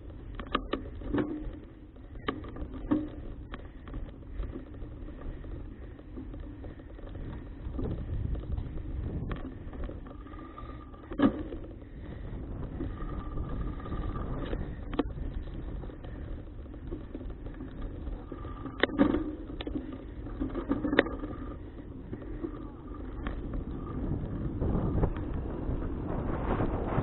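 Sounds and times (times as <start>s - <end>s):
bicycle clicks and knocks: 0.0s - 27.0s
wind and road rumble: 0.0s - 27.0s.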